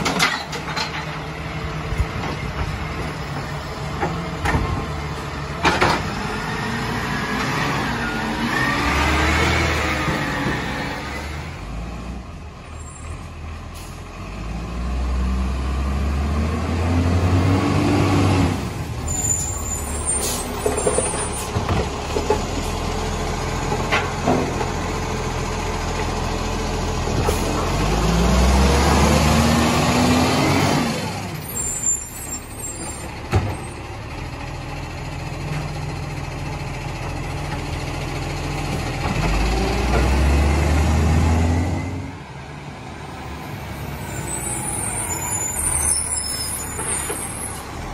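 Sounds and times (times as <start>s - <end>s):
diesel truck engine revving: 4.6s - 12.5s, 13.2s - 20.7s, 24.6s - 33.0s, 36.0s - 47.9s.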